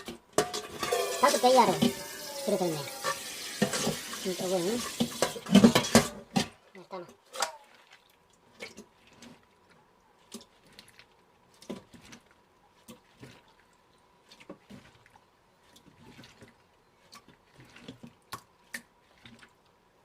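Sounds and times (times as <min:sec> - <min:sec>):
wet clicks and squelches: 0:07.3 - 0:19.8.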